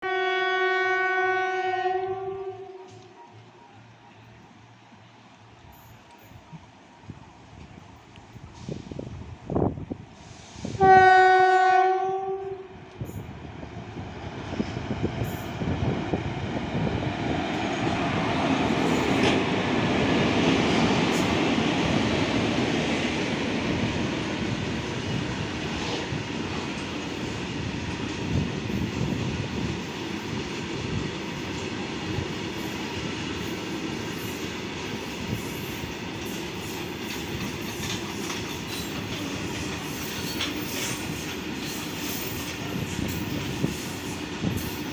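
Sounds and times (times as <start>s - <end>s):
locomotive horn blast: 0.0s - 3.1s, 10.8s - 12.7s
wheels clacking over rail joints: 32.7s - 44.9s.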